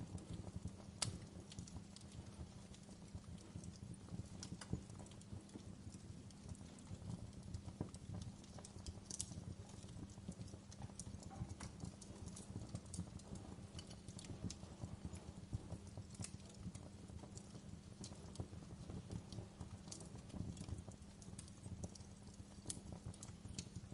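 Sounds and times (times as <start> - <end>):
wood fire crackling: 0.0 - 23.9.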